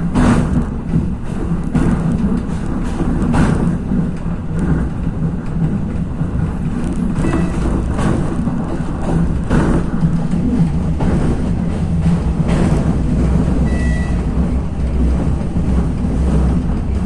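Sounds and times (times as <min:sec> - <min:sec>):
railcar engine and wheels rumbling: 0:00.0 - 0:17.0
track knocks: 0:00.0 - 0:17.0.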